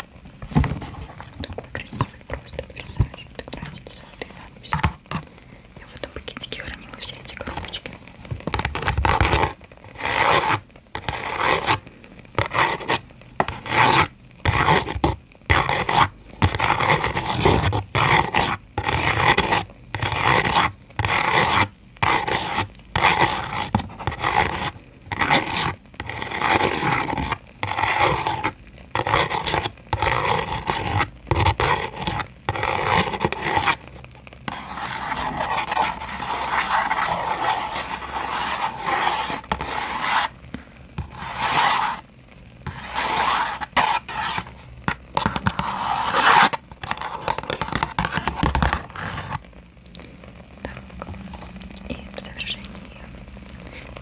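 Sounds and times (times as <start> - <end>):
hand rubbing a surface: 34.5 - 40.4, 41.0 - 42.0, 42.7 - 49.4.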